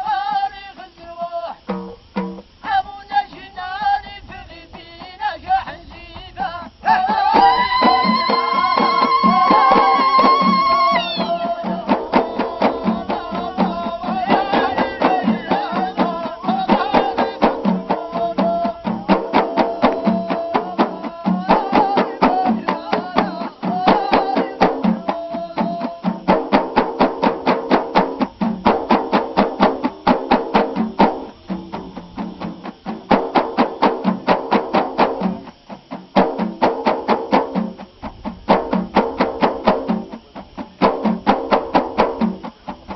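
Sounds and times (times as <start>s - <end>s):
voices singing together: 0.0s - 35.7s
frame drums beating: 0.9s - 2.9s, 5.9s - 42.9s.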